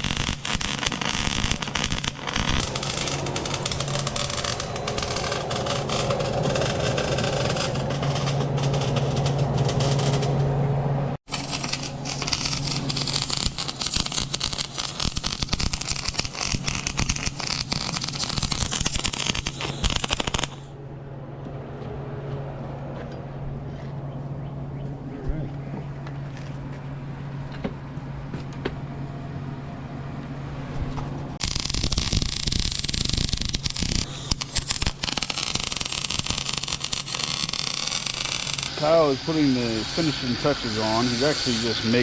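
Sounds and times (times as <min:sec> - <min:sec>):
arc welding crackle: 0:00.0 - 0:10.5, 0:11.3 - 0:20.7, 0:31.4 - 0:42.0
low hum: 0:00.0 - 0:14.9, 0:20.7 - 0:32.0.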